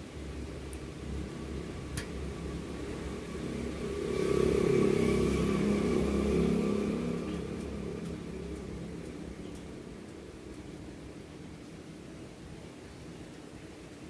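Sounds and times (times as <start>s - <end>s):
steady low hum: 0.0s - 14.0s
vehicle engine passing by: 1.1s - 10.0s.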